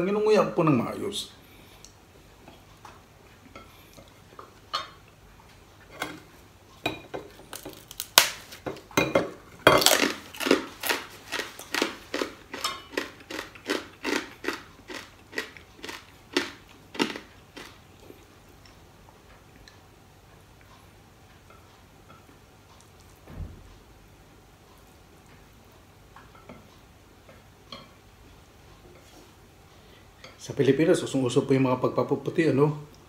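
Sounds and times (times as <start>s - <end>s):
crunchy chewing: 9.8s - 19.8s.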